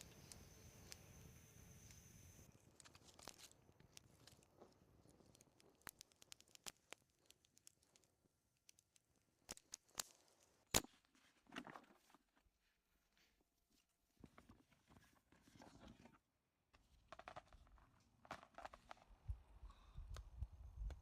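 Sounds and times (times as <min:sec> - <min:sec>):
small clicks and crackles: 0:00.0 - 0:12.5, 0:16.8 - 0:19.2.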